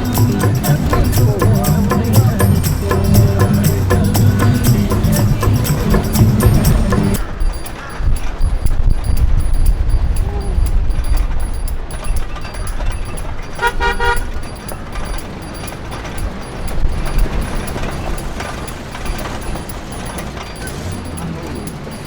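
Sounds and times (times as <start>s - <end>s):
steady low rumble: 0.0s - 7.2s
horn beeps: 13.6s - 14.5s.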